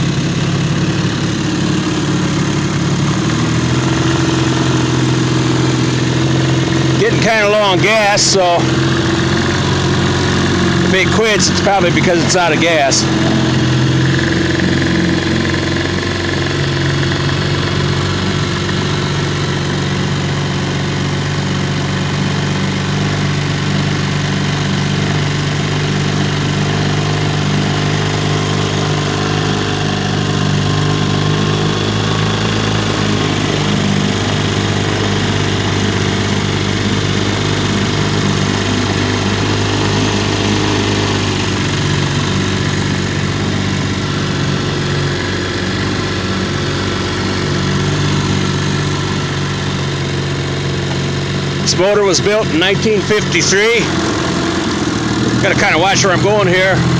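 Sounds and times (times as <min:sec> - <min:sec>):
outboard motor running: 0:00.0 - 0:56.9.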